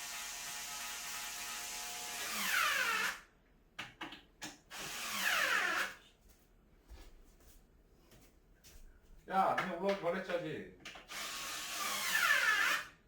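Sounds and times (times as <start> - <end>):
power drill whirring: 0.0 - 3.2, 4.7 - 6.0, 11.1 - 12.9.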